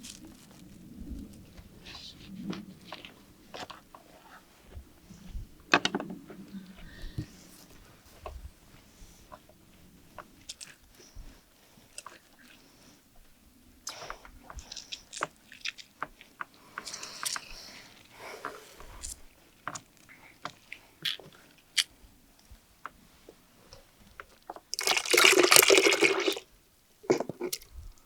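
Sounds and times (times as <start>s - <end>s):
chewing crisp fried food: 14.6s - 17.5s.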